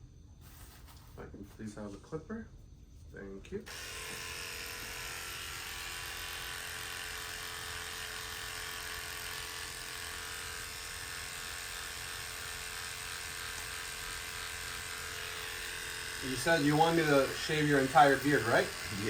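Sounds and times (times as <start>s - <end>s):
electric hair clipper buzzing: 3.7s - 19.0s.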